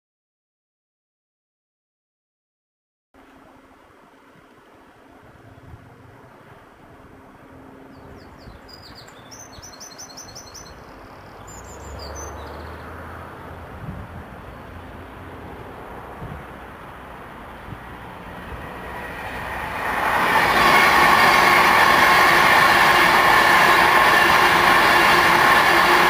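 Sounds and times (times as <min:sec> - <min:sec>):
approaching train rumble: 0:04.8 - 0:26.0
small bird chirping: 0:07.9 - 0:12.8.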